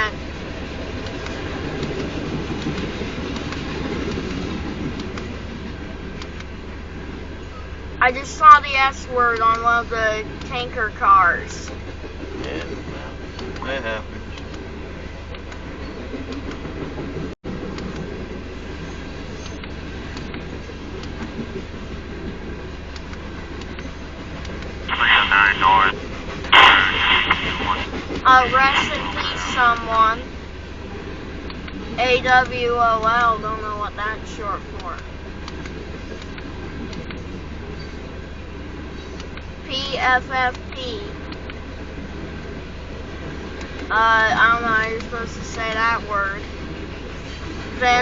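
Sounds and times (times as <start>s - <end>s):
train wheels rumbling on rail: 0.0s - 48.0s.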